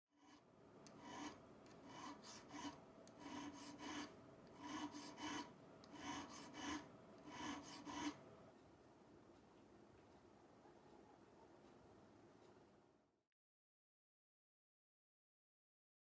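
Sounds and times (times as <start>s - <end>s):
file rasping on metal: 0.2s - 8.2s.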